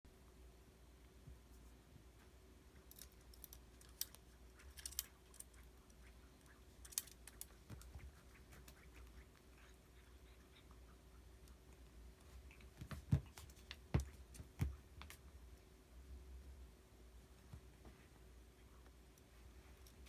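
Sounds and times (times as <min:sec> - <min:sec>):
faint room hum: 0:00.0 - 0:20.0.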